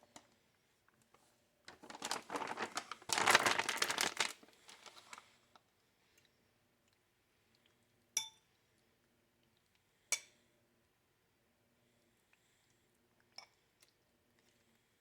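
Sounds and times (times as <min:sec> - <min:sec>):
faint rustling: 0:01.7 - 0:05.3.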